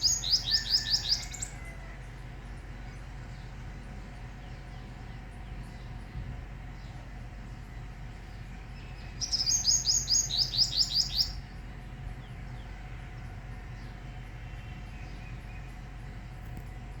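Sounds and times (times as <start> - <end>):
small bird trilling: 0.0 - 1.6, 9.2 - 11.4.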